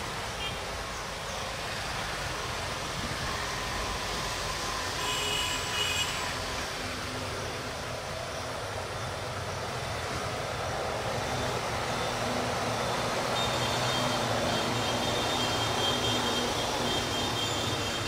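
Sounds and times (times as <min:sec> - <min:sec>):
distant freight train rumble: 0:00.0 - 0:18.0.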